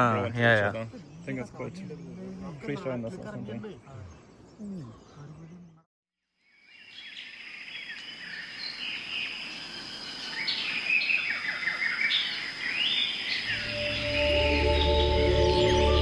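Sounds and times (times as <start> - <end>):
birds chirping and calling: 6.8 - 16.0
high insect whine: 7.4 - 16.0
soft music: 13.5 - 16.0.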